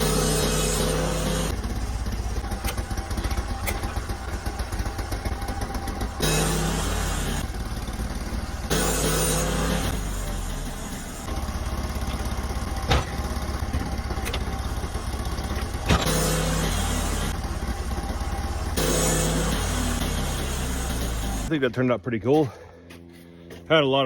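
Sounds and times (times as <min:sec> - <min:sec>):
sawmill engine running: 0:00.0 - 0:21.6
sharp knocks: 0:12.8 - 0:14.6, 0:15.5 - 0:16.4.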